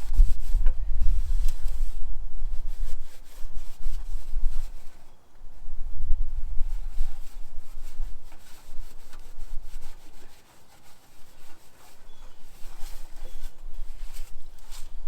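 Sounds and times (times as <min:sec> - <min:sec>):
rag scrubbing back and forth: 0:07.2 - 0:14.9.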